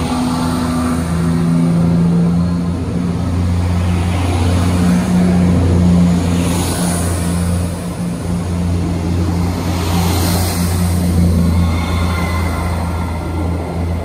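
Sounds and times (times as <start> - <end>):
hiss of passing carriages: 0.0 - 14.0
passenger train passing: 0.0 - 14.0.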